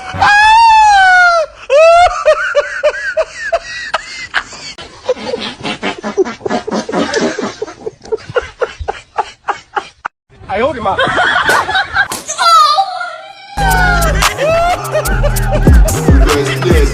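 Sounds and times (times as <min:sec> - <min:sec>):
human laughter: 0:01.3 - 0:10.1, 0:11.0 - 0:12.1, 0:13.6 - 0:16.9
high-pitched squealing cry: 0:12.3 - 0:15.0.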